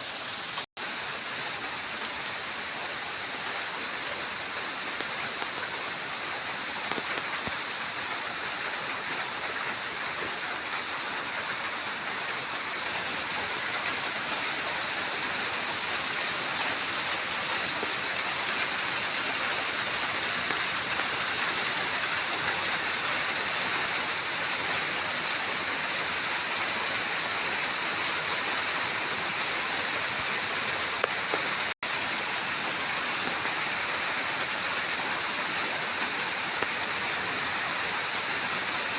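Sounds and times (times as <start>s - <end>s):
steady rain hiss: 0.0s - 38.9s
raindrop ticks: 4.9s - 5.7s, 6.8s - 7.8s, 31.0s - 31.7s.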